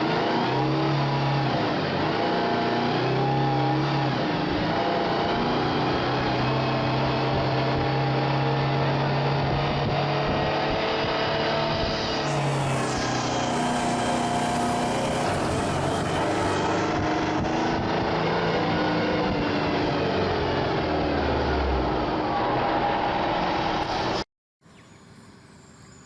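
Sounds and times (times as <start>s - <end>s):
heavy truck engine running: 12.0s - 23.8s.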